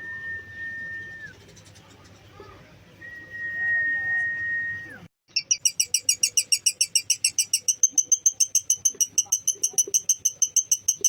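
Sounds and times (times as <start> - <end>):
lovebird rapid chatter: 1.3 - 2.5, 5.3 - 11.0.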